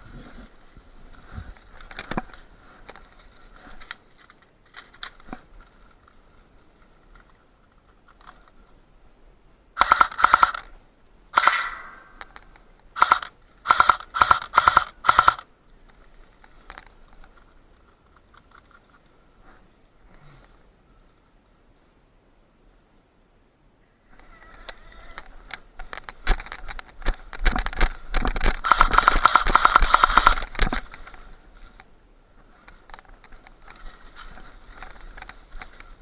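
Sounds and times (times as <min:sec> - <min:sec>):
faint clicks and rustles: 0:00.0 - 0:09.0, 0:11.4 - 0:22.0, 0:24.1 - 0:36.0
airsoft rifle full-auto bursts: 0:09.8 - 0:10.6, 0:13.0 - 0:15.4.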